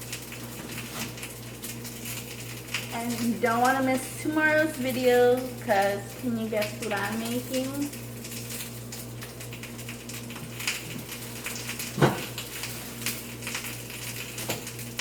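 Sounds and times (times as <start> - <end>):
low electrical hum: 0.0 - 15.0
onions sizzling in oil: 0.0 - 15.0
kitchen knocks and clicks: 11.9 - 12.4.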